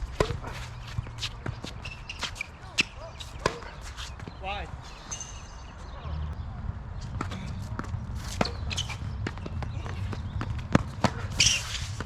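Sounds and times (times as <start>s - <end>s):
footsteps on court: 0.0s - 5.1s, 7.0s - 12.0s
tennis ball strikes and bounces: 0.1s - 4.3s, 7.0s - 12.0s
low rumble: 5.8s - 7.1s.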